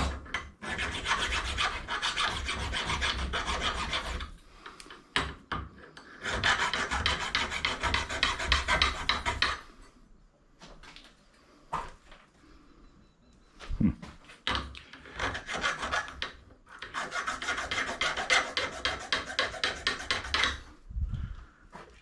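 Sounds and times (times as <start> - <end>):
scrap metal being scraped: 0.0 - 4.8, 15.0 - 20.8.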